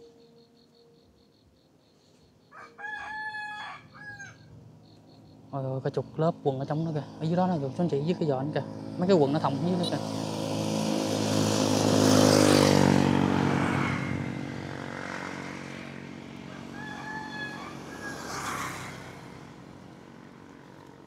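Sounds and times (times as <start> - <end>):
distant rooster crowing: 2.5 - 4.5, 16.4 - 19.2
vehicle engine passing: 4.6 - 21.0.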